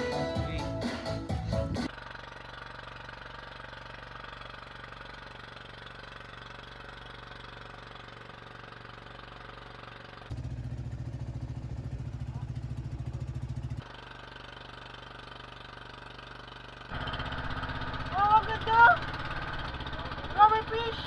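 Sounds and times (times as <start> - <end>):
engine running low: 0.0 - 21.0
loud engine fast throb: 10.3 - 21.0.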